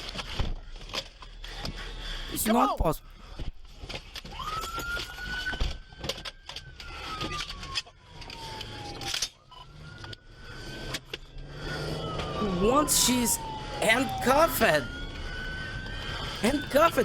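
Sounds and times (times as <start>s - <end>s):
police siren wailing: 4.2s - 17.0s.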